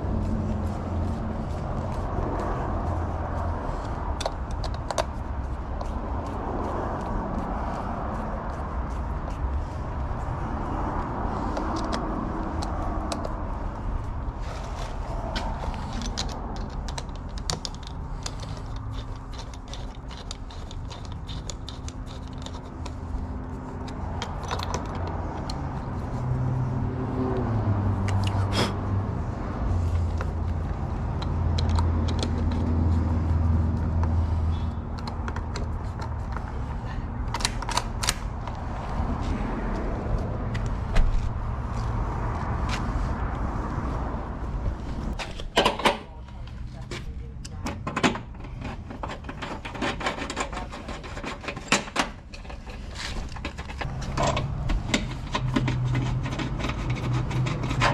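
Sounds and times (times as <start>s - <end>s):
metal lock parts clicking: 15.4s - 23.0s, 23.8s - 25.6s, 31.2s - 32.7s, 37.2s - 38.6s, 45.2s - 46.1s, 47.5s - 57.9s.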